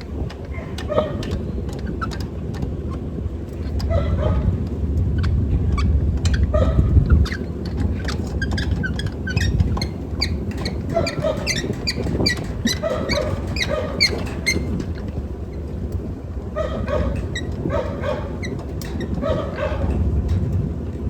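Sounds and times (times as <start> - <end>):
steady low rumble: 0.0 - 21.0
chickens clucking: 10.2 - 14.8.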